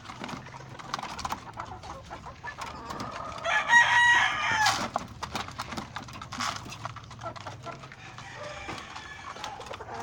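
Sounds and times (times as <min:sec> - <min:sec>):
rooster crowing: 0:03.4 - 0:04.8, 0:08.0 - 0:09.6.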